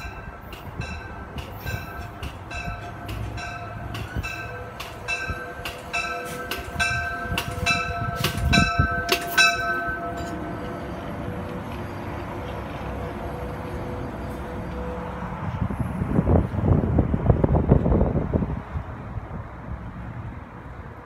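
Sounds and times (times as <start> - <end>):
high ringing tone: 0.0 - 12.2
train rolling past: 0.0 - 21.0.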